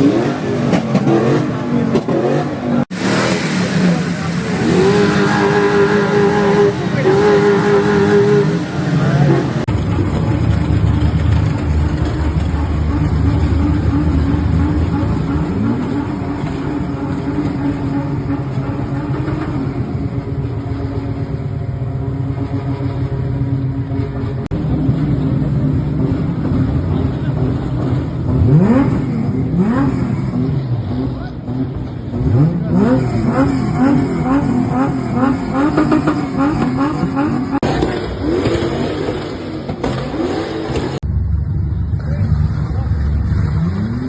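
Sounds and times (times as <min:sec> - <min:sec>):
car engine revving: 0:00.0 - 0:44.0
car engines accelerating: 0:00.0 - 0:44.0.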